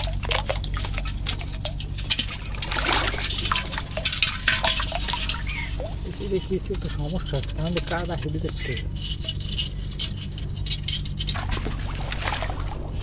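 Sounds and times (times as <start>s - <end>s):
sharp splashes and knocks: 0.0s - 6.9s, 11.3s - 13.0s
high-pitched whine: 0.0s - 13.0s
shallow water splashing and trickling: 0.0s - 13.0s.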